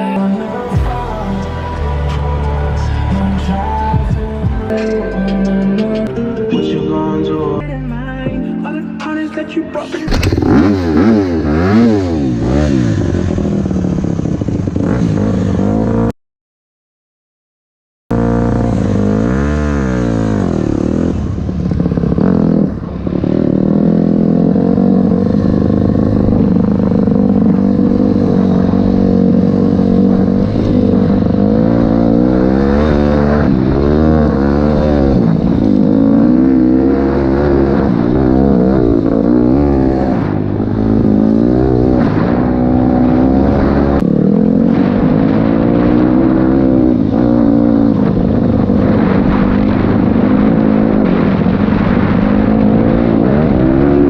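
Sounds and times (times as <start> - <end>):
dirt bike engine revving: 10.1 - 16.1, 18.1 - 54.0.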